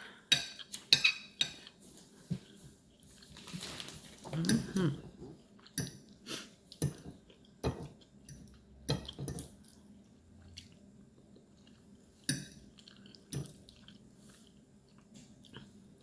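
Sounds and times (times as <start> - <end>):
person chewing food: 4.4 - 16.0.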